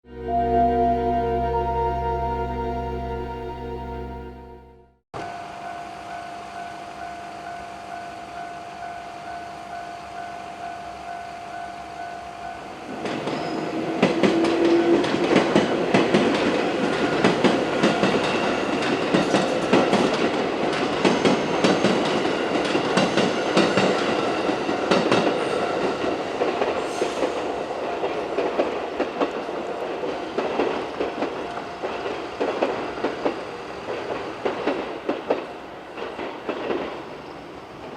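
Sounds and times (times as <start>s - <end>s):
level-crossing warning bell: 0.1s - 14.0s, 15.0s - 26.2s
train wheels clacking over rail joints: 26.4s - 37.1s.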